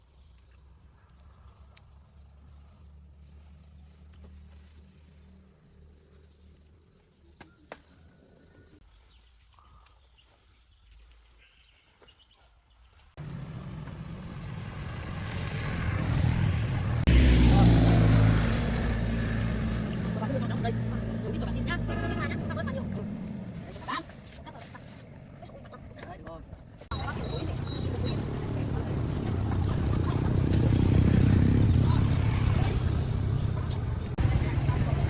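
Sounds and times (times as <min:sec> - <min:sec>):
low rumble: 0:13.2 - 0:23.8.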